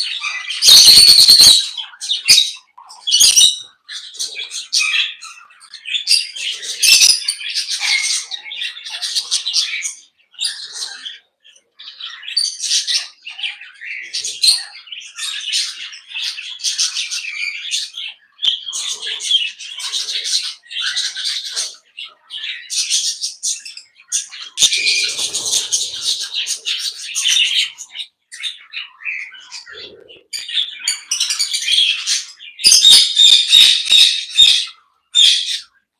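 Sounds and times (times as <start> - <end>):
parrots chirping and squawking: 0.0 - 35.8.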